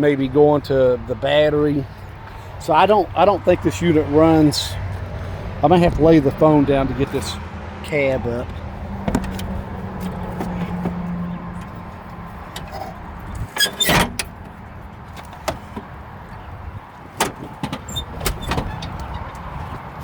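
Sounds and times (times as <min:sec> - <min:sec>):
metal clunks and knocks: 0:08.4 - 0:11.8, 0:12.5 - 0:16.4, 0:17.2 - 0:19.8.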